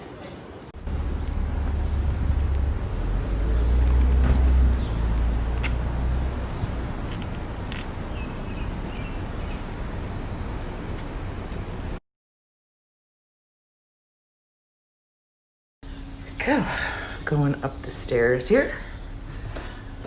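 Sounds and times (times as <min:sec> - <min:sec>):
traffic rumble: 0:00.7 - 0:12.0, 0:15.8 - 0:20.0.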